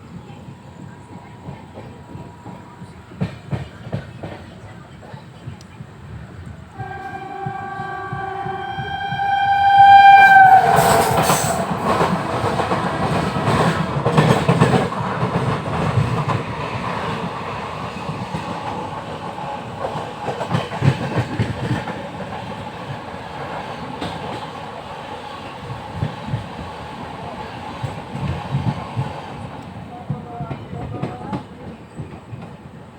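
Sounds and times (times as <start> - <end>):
train horn: 6.7 - 14.9.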